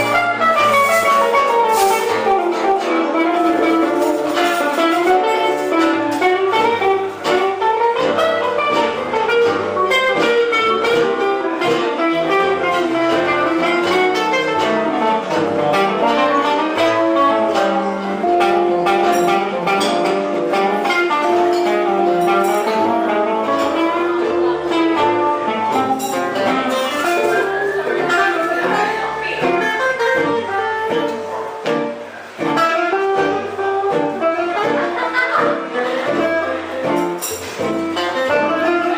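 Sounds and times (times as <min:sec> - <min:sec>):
live band playing a tune: 0:00.0 - 0:38.9.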